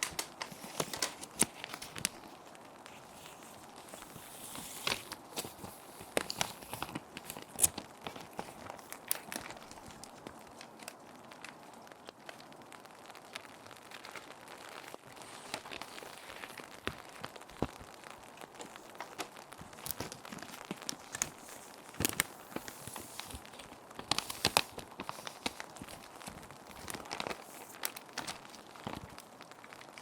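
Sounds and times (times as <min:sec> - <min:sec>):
plastic sheets crinkling: 0:00.0 - 0:30.0.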